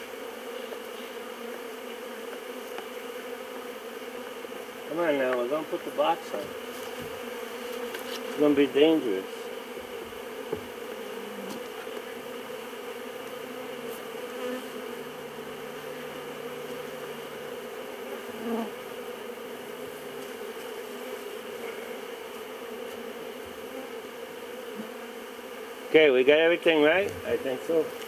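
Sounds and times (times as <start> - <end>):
bees buzzing: 0.0 - 28.0
small knocks: 9.9 - 11.0.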